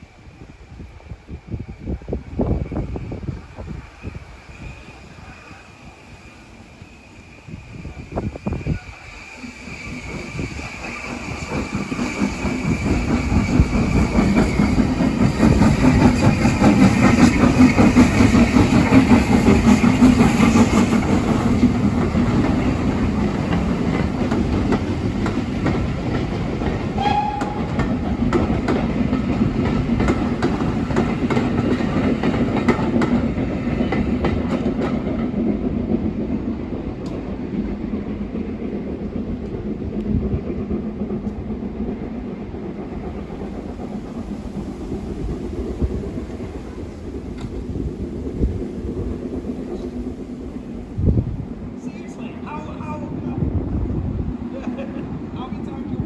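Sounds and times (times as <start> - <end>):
train passing: 0.0 - 56.0
brief high tone: 27.0 - 27.8.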